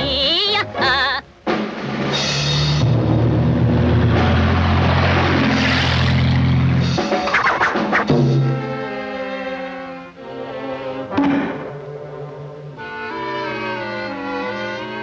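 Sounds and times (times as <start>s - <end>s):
orchestral music: 0.0s - 15.0s
loud dense noisy music: 1.6s - 9.0s.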